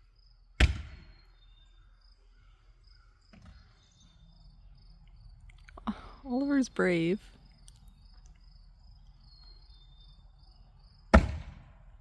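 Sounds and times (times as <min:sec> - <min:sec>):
crickets chirping: 0:00.0 - 0:12.0
axe splitting firewood: 0:11.1 - 0:11.8.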